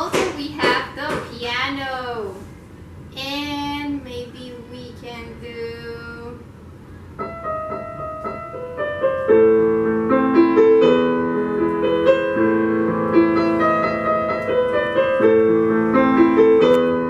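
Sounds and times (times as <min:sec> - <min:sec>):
piano chords and notes: 0:07.2 - 0:17.0.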